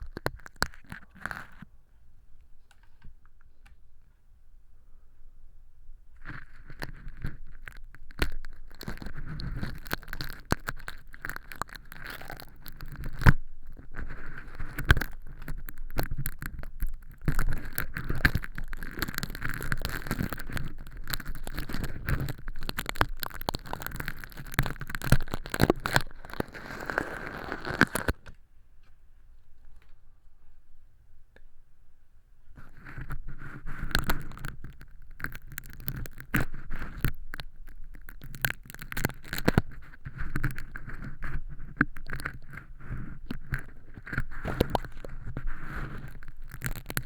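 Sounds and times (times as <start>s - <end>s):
plastic film crackling: 6.4s - 28.2s, 33.7s - 47.0s.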